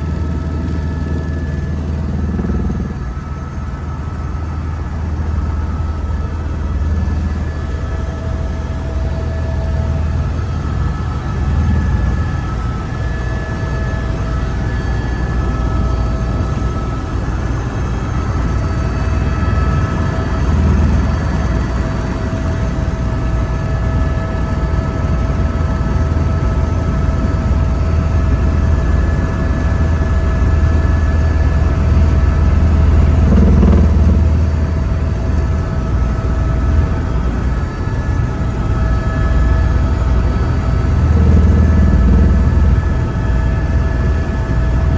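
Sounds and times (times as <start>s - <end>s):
helicopter engine and rotor: 0.0s - 44.9s
high whine: 27.7s - 44.9s.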